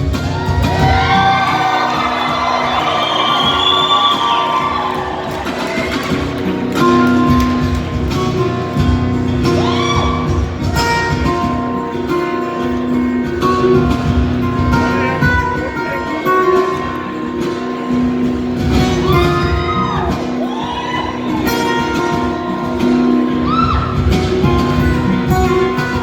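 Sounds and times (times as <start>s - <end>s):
acoustic band playing: 0.0s - 26.0s
acoustic guitar: 0.0s - 26.0s.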